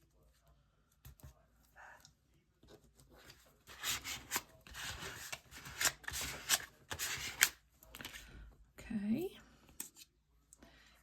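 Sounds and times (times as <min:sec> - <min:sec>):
paper and card rustling: 0:02.7 - 0:08.3.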